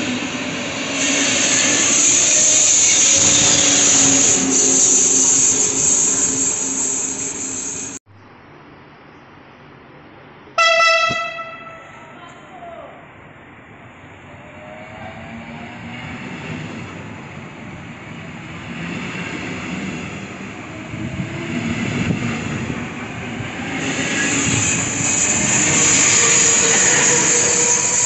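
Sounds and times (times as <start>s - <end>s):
locomotive hiss: 0.0s - 8.0s, 16.4s - 28.0s
train wheels rumbling: 0.0s - 8.0s, 13.7s - 28.0s.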